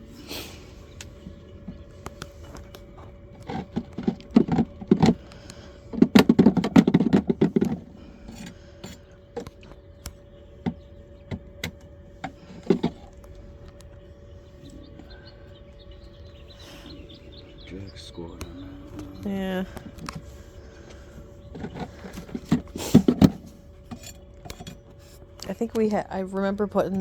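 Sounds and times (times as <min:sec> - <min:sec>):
rattling and scraping: 0:00.0 - 0:27.0
wooden frames clicking and knocking: 0:01.6 - 0:08.0.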